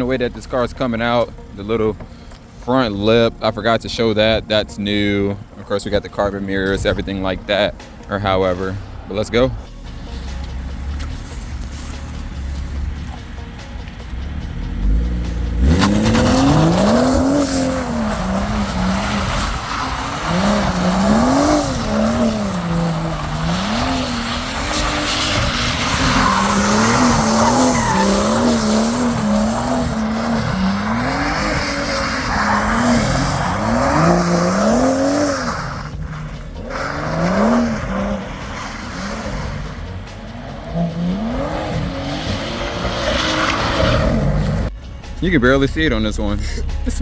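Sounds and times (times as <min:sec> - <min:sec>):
tires spinning and sliding: 0:00.0 - 0:47.0
car engine revving hard: 0:14.0 - 0:44.7.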